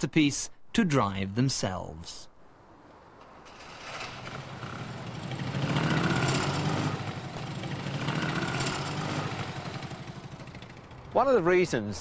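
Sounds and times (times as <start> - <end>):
small car engine running: 3.5 - 11.6.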